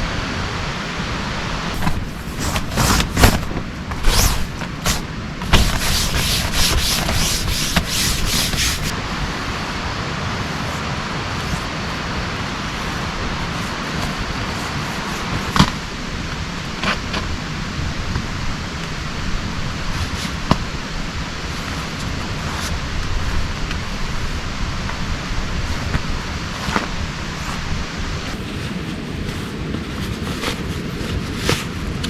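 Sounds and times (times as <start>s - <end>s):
heavy rain hiss: 0.0s - 30.5s
rubbing and scraping strokes: 1.7s - 9.0s, 12.4s - 15.8s, 19.8s - 24.5s, 25.6s - 32.0s.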